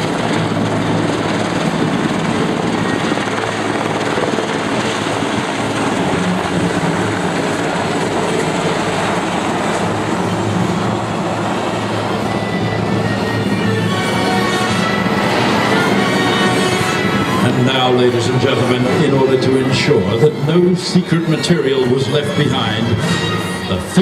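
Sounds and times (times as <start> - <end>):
helicopter rotors and turbines: 0.0 - 24.0.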